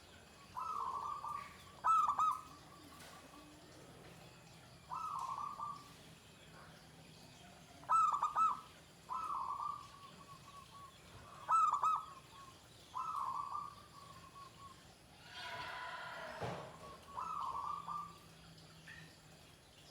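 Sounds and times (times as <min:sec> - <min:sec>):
dove cooing: 0:00.6 - 0:03.3, 0:04.9 - 0:05.9, 0:07.8 - 0:14.7, 0:16.7 - 0:18.3.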